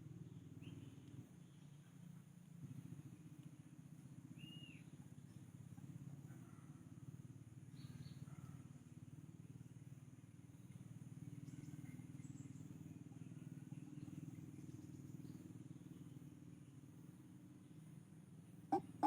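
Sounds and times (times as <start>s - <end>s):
faint high chirps: 18.7s - 19.0s.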